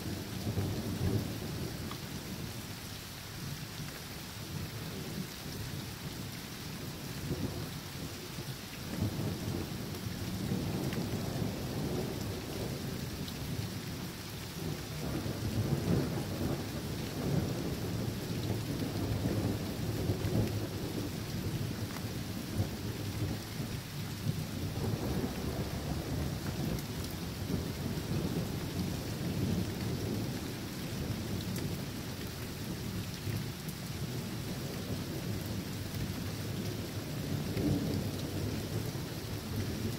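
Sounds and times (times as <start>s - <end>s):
rain hissing: 4.7s - 39.9s
thunder rumbling: 24.3s - 30.6s.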